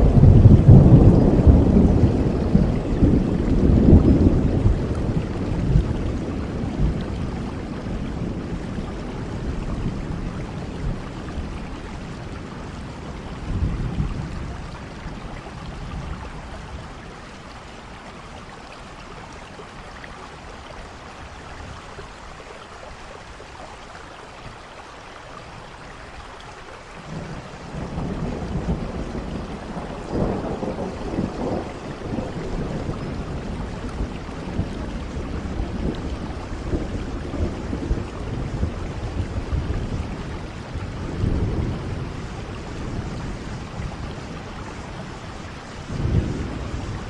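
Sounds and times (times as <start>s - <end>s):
low rumble of thunder: 0.0s - 23.4s, 26.8s - 47.0s
steady rain falling: 0.0s - 47.0s.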